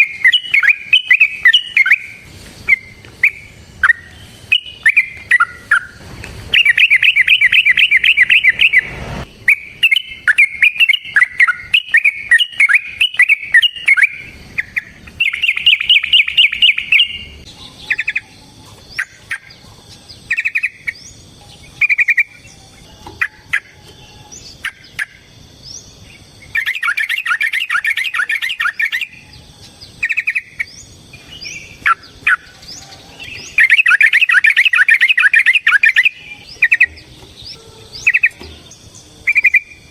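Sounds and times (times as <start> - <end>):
thin rising whistles: 0.0 - 18.4, 33.3 - 38.4, 39.2 - 39.9
bird calling rapid repeated notes: 0.0 - 19.6, 20.2 - 22.4, 23.2 - 25.4, 26.2 - 32.6, 33.2 - 38.4, 39.2 - 39.9.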